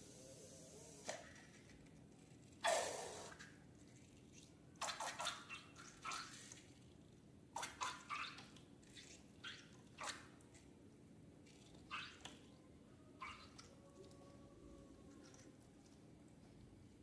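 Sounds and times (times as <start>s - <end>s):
slime squelching: 2.6s - 7.0s, 7.6s - 10.7s.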